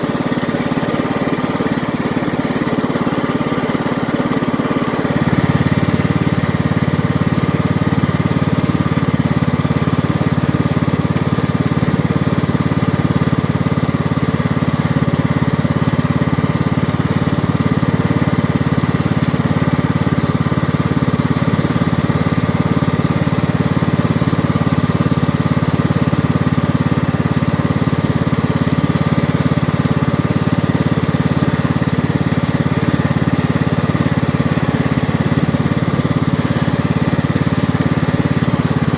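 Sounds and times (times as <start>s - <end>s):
lawn tractor engine running: 0.0s - 38.9s.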